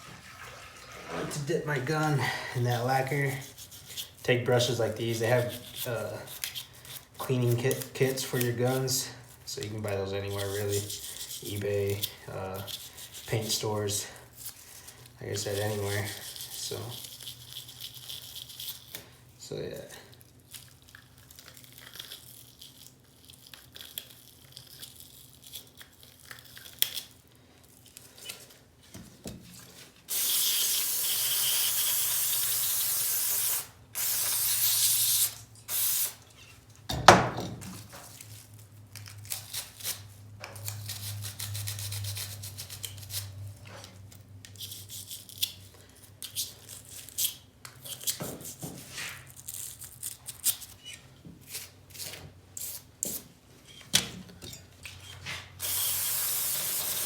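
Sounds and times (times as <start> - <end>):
brushes scrubbing: 0.0 - 14.6, 15.2 - 18.8.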